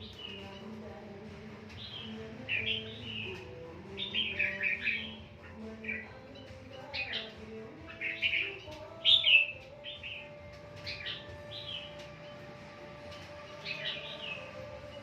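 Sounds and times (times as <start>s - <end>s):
birds chirping falling calls: 0.0s - 15.0s.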